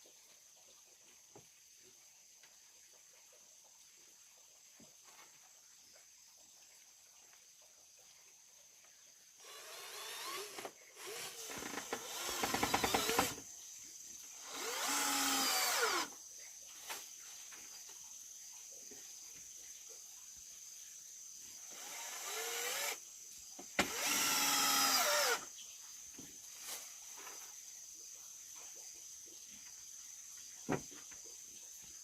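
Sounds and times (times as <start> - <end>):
drill rattle: 9.4 - 13.4, 14.4 - 16.1, 21.7 - 23.0, 23.8 - 25.4
power drill running: 9.4 - 13.4, 14.4 - 16.1, 21.6 - 23.0, 23.8 - 25.5.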